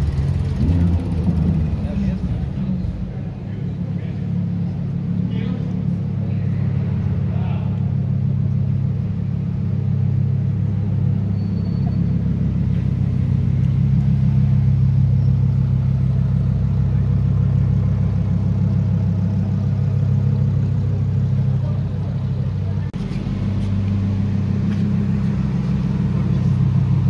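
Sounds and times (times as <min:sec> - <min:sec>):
car engine deep rumble: 0:00.0 - 0:27.0.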